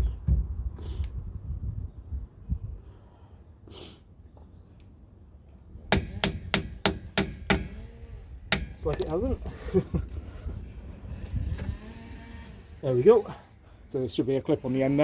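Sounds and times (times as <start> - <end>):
hammer striking metal: 5.9 - 7.7.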